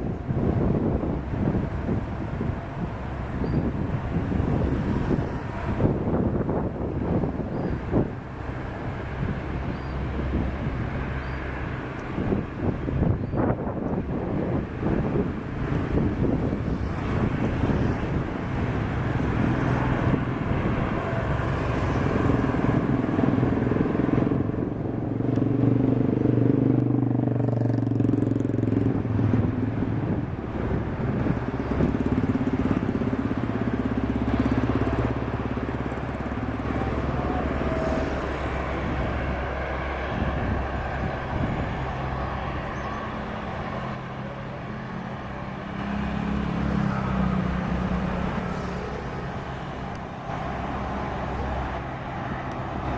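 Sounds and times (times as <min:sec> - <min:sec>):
car passing: 0:00.0 - 0:52.9
steady traffic background noise: 0:00.0 - 0:52.9
motorcycle passing: 0:14.1 - 0:52.9.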